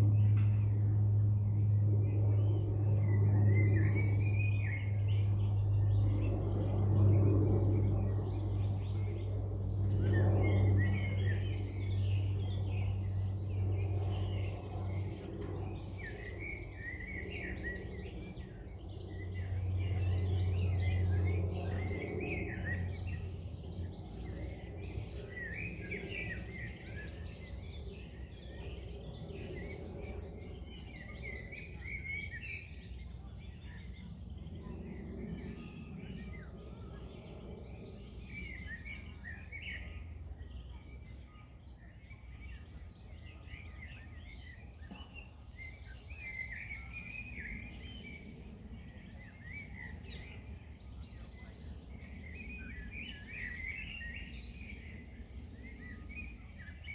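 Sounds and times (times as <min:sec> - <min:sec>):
wind in trees: 0:00.0 - 0:56.9
small birds chirping: 0:02.1 - 0:56.9.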